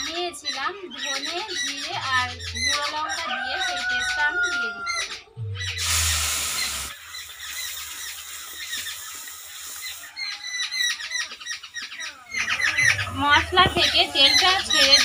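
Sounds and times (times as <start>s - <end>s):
small birds chirping: 0.0s - 15.0s
spice paste sizzling in oil: 5.8s - 10.6s.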